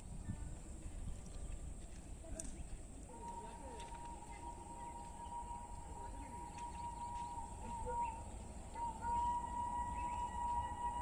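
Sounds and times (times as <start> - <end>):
distant train horn: 3.1 - 11.0
faint bird chirps: 3.4 - 11.0.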